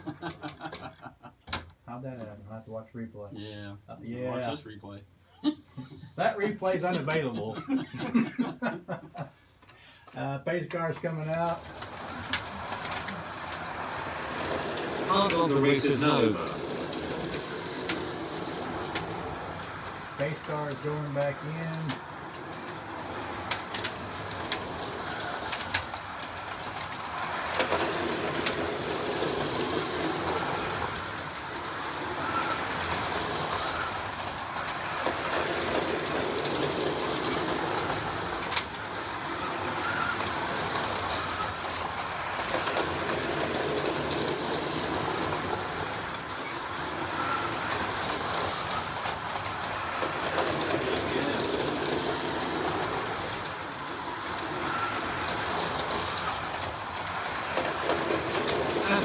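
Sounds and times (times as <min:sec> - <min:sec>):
slot car motors whirring: 0:11.0 - 0:59.0.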